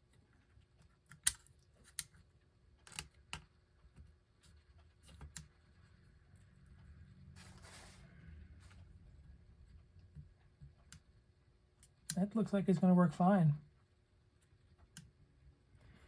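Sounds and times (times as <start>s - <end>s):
small metal clicks and taps: 1.1s - 2.2s, 2.8s - 4.0s.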